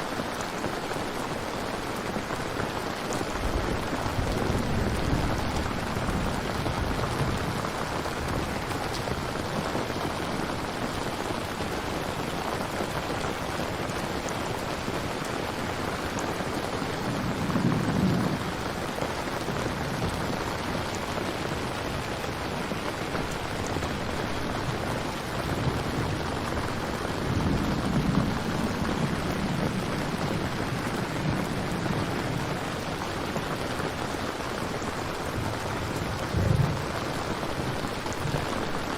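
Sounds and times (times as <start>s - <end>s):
heavy rainfall: 0.0s - 38.9s
thunder rumbling: 3.2s - 10.7s, 16.8s - 34.4s, 35.1s - 38.9s.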